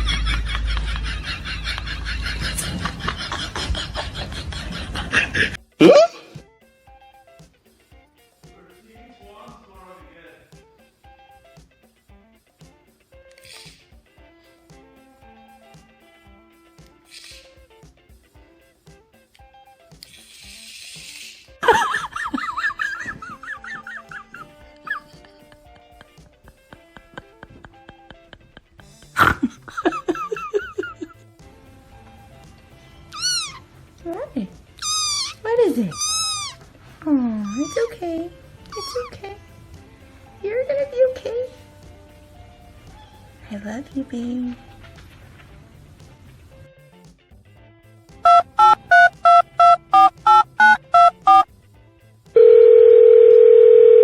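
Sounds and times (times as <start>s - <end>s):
short high-pitched calls: 17.1s - 17.6s, 33.2s - 33.6s, 34.8s - 36.6s, 48.3s - 51.4s
music with plucked ticking beat: 21.6s - 31.1s, 48.1s - 51.5s
keypad two-tone beeps: 48.3s - 51.4s
steady telephone tone: 48.3s - 51.4s, 52.4s - 54.0s.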